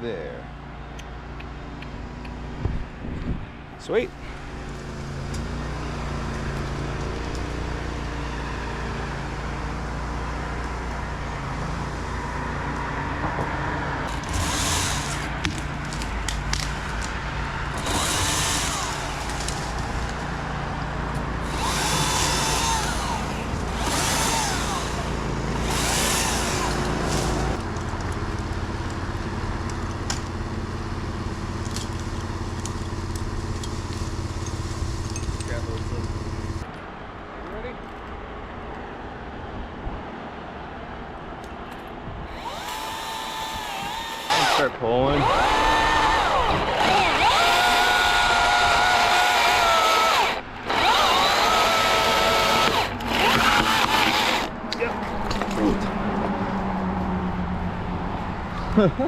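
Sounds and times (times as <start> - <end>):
engine drone: 0.0 - 36.7, 42.3 - 59.0
power tool bursts: 14.1 - 15.6, 17.8 - 19.8, 21.4 - 27.6, 42.3 - 54.5.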